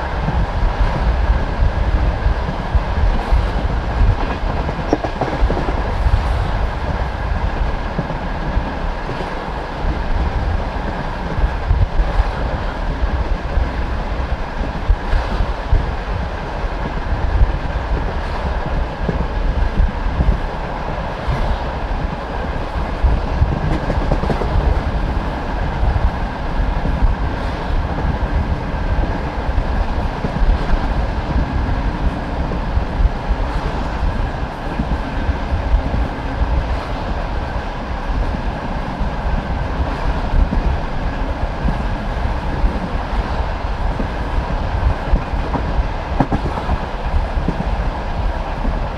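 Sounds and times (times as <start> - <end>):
train wheels rumbling on rail: 0.0 - 48.9.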